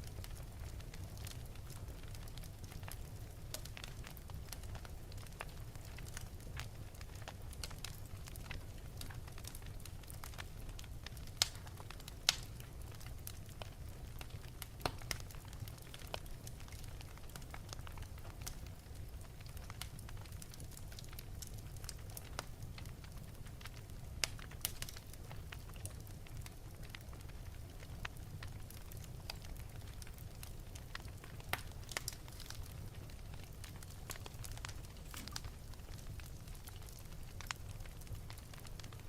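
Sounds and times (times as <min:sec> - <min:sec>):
fire crackling: 0:00.0 - 0:39.0
sharp fire pops: 0:33.4 - 0:38.9.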